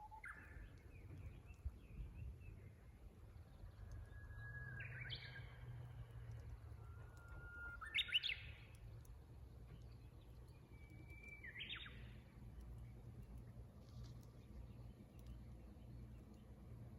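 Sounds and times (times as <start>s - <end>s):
bush warbler singing: 7.8s - 8.7s, 9.7s - 13.0s.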